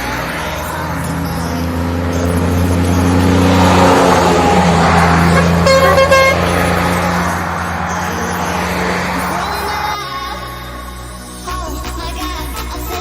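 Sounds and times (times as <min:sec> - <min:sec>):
truck engine passing by: 0:00.0 - 0:11.5
truck horn toot: 0:02.3 - 0:07.6.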